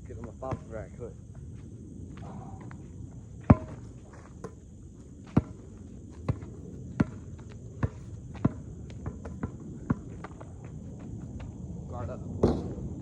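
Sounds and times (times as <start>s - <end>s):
basketball bouncing on hard ground: 0.1s - 0.7s, 3.4s - 11.6s, 12.4s - 12.9s.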